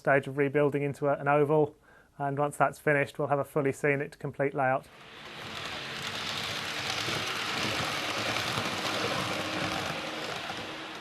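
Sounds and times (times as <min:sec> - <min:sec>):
model train rumbling on track: 0:04.9 - 0:11.0.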